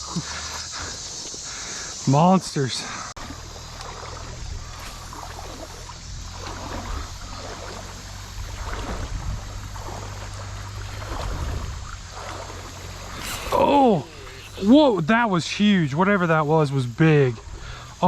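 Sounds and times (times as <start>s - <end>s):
creek water flowing: 0.0s - 18.0s
steady low rumble: 3.1s - 16.0s.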